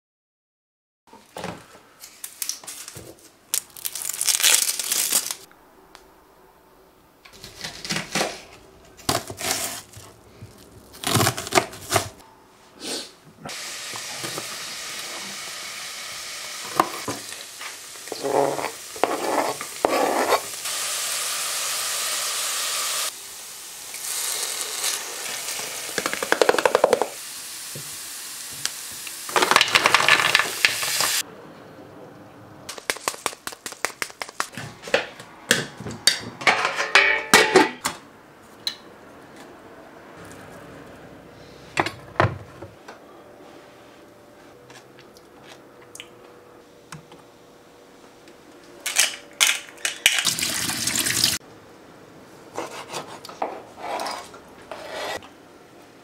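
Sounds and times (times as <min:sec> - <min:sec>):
food sizzling in a pan: 0:13.5 - 0:31.2
items knocking on countertop: 0:26.0 - 0:27.2.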